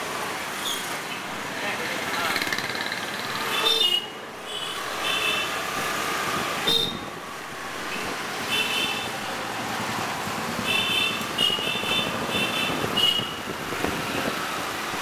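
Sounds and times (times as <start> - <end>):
motorcycle engine and road noise: 0.0 - 3.8, 4.6 - 15.0
vehicle horns honking: 3.5 - 5.6, 6.6 - 7.1, 10.6 - 13.4.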